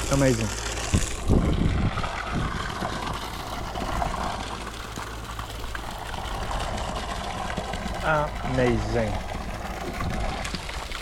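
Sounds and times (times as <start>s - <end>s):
water gushing: 0.0s - 11.0s
well pump running: 0.0s - 11.0s.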